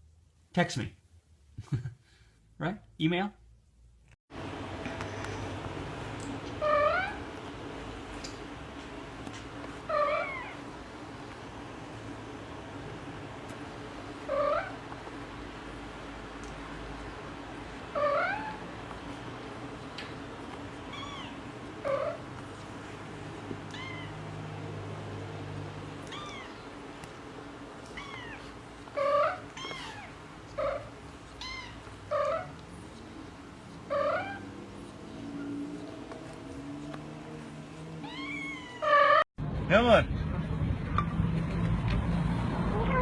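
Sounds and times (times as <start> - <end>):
cat meowing: 6.6 - 7.2, 9.9 - 10.6, 14.3 - 14.8, 17.9 - 18.6, 20.9 - 22.2, 23.6 - 24.3, 26.0 - 26.6, 27.9 - 32.6, 33.9 - 34.5, 38.0 - 39.2, 42.7 - 43.0
high-pitched cat calls: 6.6 - 7.3, 9.9 - 10.6, 17.9 - 18.7, 20.9 - 22.2, 23.6 - 24.2, 26.0 - 26.6, 27.9 - 32.6, 33.9 - 34.5, 38.0 - 39.3.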